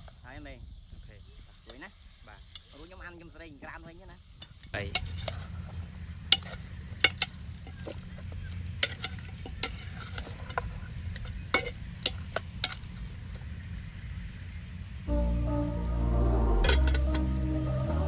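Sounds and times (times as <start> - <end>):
low steady rumble: 15.1 - 18.0.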